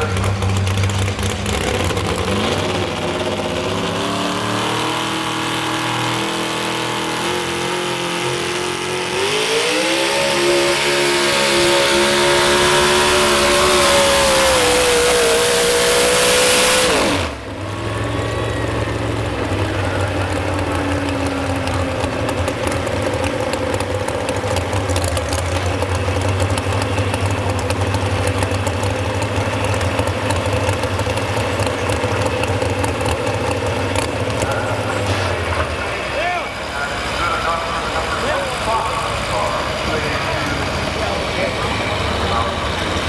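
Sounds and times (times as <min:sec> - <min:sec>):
engine idling low rumble: 0:00.0 - 0:06.8, 0:17.2 - 0:43.0
truck engine at full throttle: 0:00.0 - 0:43.0.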